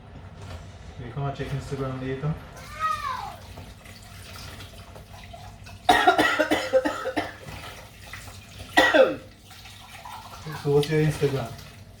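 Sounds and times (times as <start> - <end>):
person coughing: 5.9 - 7.4, 8.8 - 9.2.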